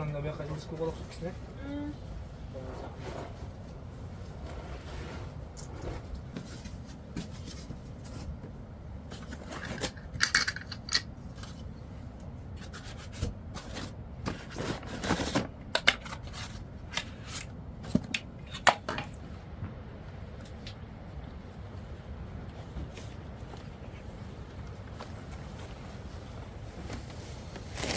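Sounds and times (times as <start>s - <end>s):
objects rubbing and scraping: 2.4s - 8.4s.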